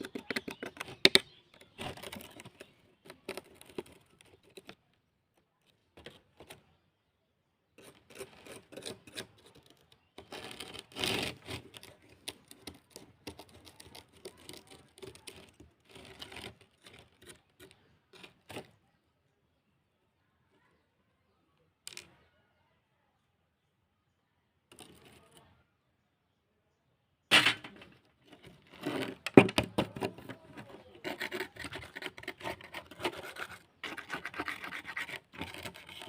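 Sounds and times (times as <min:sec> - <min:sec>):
rubbing or scraping: 0:00.0 - 0:04.8, 0:07.8 - 0:18.8, 0:27.3 - 0:36.0.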